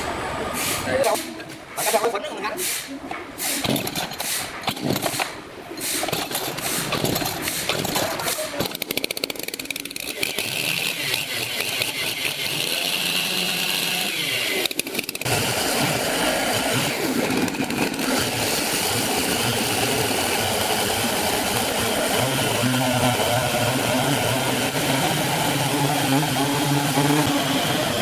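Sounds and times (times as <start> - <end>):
sawmill machinery whining: 7.1 - 28.0.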